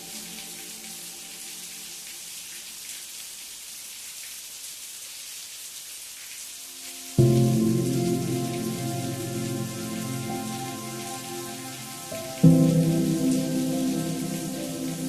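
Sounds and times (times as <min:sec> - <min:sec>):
steady rain hiss: 0:00.0 - 0:15.0
soft background music tones: 0:06.9 - 0:15.0
loud sustained music chord: 0:07.2 - 0:15.0.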